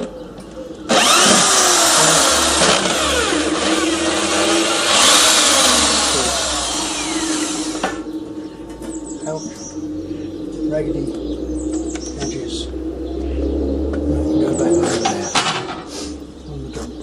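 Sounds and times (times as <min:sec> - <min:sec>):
angle grinder cutting metal: 0:00.9 - 0:08.0.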